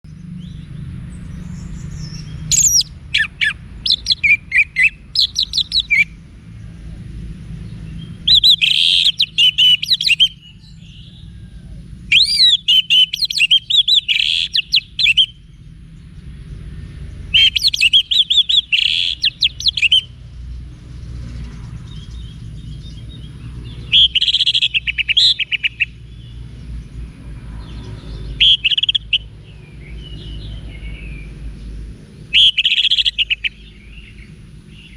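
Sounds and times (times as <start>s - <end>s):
thrush singing: 2.2s - 6.2s, 7.8s - 11.2s.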